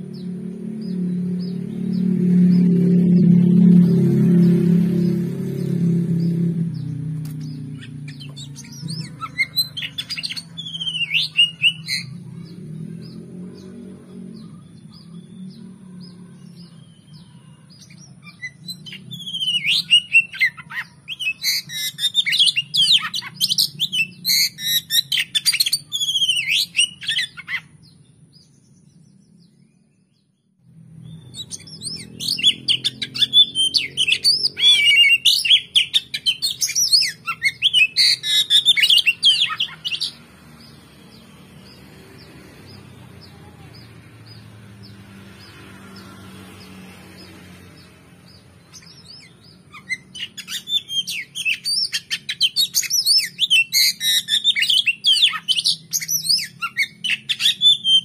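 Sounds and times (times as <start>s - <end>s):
songbird whistling and chattering: 6.1s - 13.8s, 16.4s - 28.0s, 31.1s - 45.5s, 47.2s - 58.0s.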